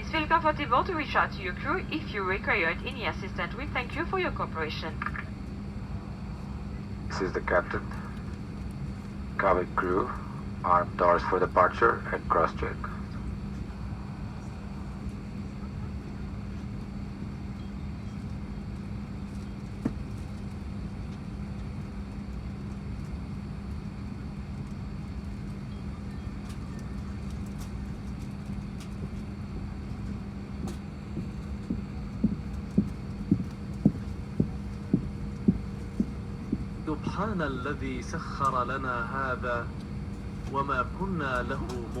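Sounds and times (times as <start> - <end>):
airliner cabin hum: 0.0 - 42.0.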